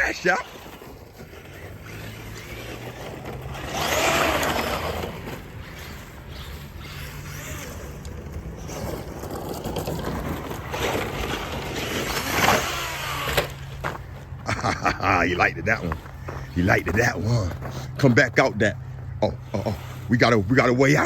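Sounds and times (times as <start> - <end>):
electric motor whining: 0.0 - 14.2.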